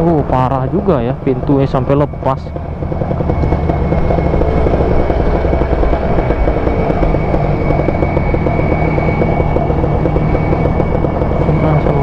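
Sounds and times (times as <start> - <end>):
motorcycle engine running: 0.0 - 12.0
thin high whistle: 6.3 - 12.0.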